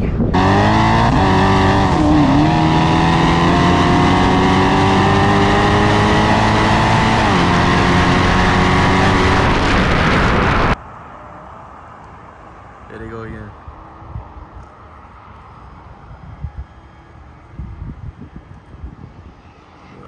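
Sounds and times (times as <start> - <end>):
car engine at full throttle: 0.0 - 10.8.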